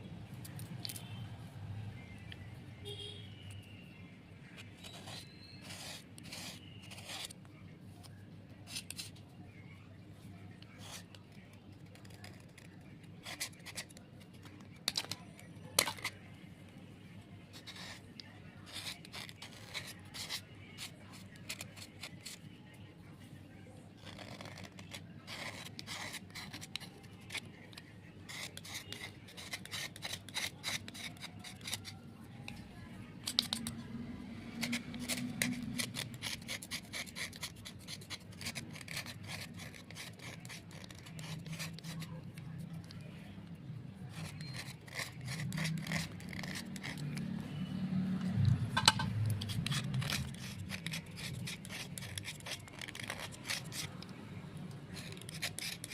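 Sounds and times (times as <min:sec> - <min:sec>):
scraping on slate pencils: 0:04.6 - 0:07.4, 0:08.7 - 0:09.2, 0:10.6 - 0:16.2, 0:17.5 - 0:22.4, 0:24.0 - 0:32.0, 0:33.2 - 0:33.8, 0:34.5 - 0:43.1, 0:44.0 - 0:47.4, 0:48.8 - 0:55.9.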